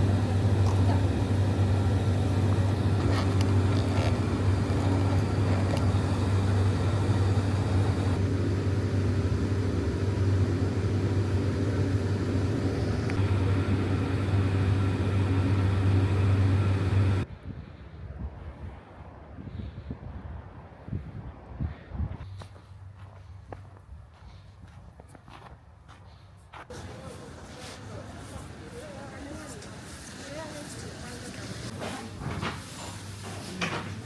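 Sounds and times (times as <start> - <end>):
train rumbling: 0.0 - 17.3, 26.7 - 34.0.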